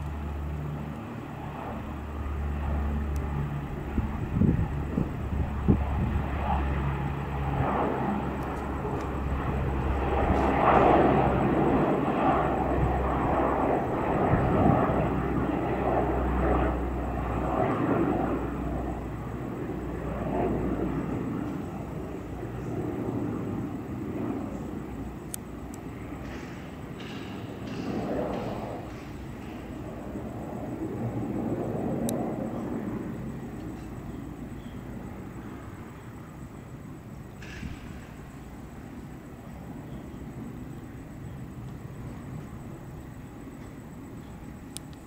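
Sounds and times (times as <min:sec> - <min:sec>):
military aircraft taking off: 0:00.0 - 0:45.0.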